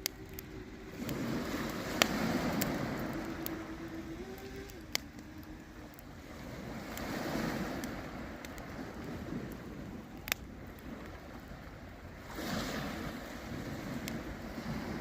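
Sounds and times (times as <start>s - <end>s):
burning wood popping: 0.0s - 11.6s
campfire crackling: 0.0s - 15.0s.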